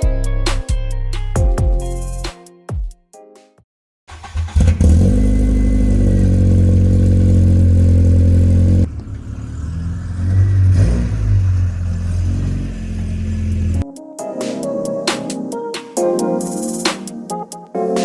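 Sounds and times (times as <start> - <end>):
car engine starting and running: 4.1 - 13.8.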